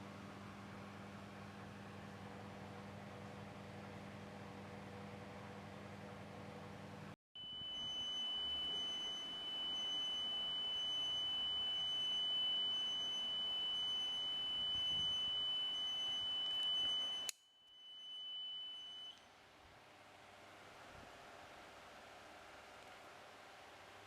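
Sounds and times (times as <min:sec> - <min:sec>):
high-pitched electronic beep: 0:07.4 - 0:19.2.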